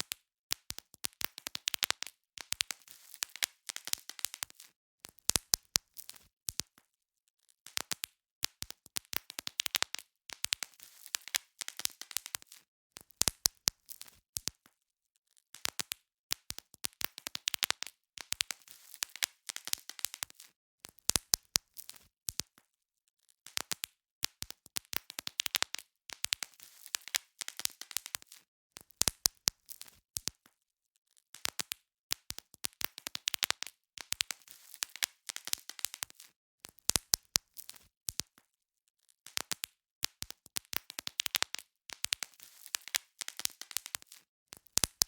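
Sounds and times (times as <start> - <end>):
bubble wrap popping: 0.0 - 6.8, 7.6 - 14.7, 15.5 - 22.6, 23.4 - 30.5, 31.3 - 38.5, 39.1 - 45.0
plastic crinkling: 41.1 - 44.2.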